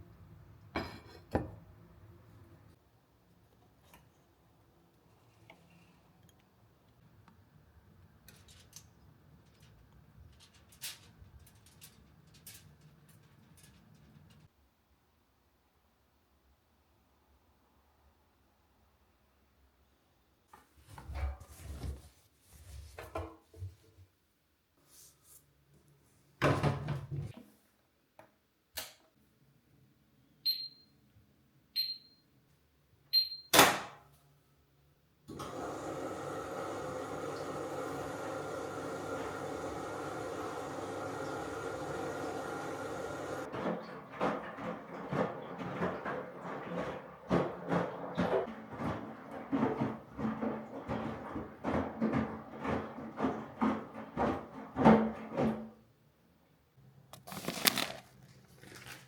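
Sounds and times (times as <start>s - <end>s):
appliance control panel beeps: 30.4s - 30.9s, 31.8s - 32.2s, 33.1s - 33.6s.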